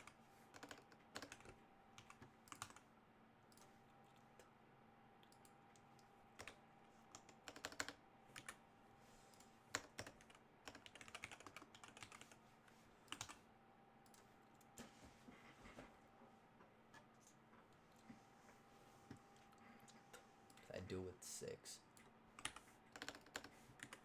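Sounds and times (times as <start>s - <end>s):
keyboard typing clicks: 0.0s - 2.8s, 5.2s - 8.6s, 9.3s - 12.3s, 13.1s - 13.4s, 22.0s - 24.0s
faint steady hum: 0.0s - 24.0s.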